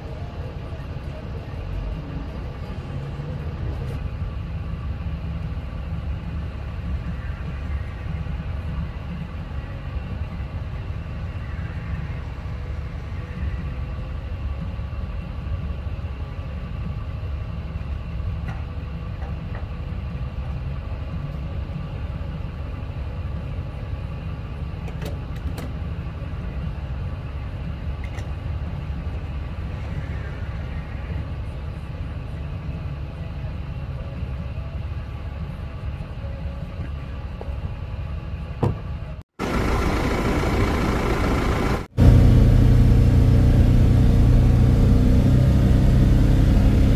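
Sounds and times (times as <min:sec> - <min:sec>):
vehicle engine rumbling: 0:00.0 - 0:46.9
louder higher engine sound: 0:39.4 - 0:46.9.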